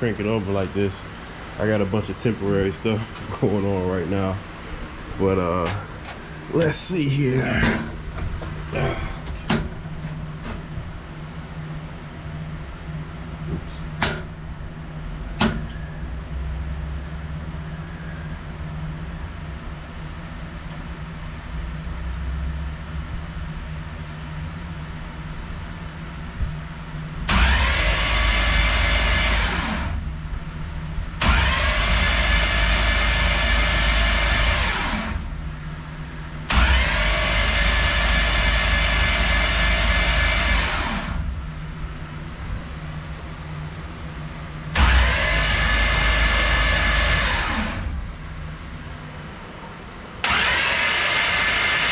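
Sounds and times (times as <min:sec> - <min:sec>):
starter motor cranking engine: 0:27.2 - 0:30.0, 0:31.2 - 0:35.4, 0:36.4 - 0:41.3, 0:44.7 - 0:48.0, 0:50.2 - 0:51.9.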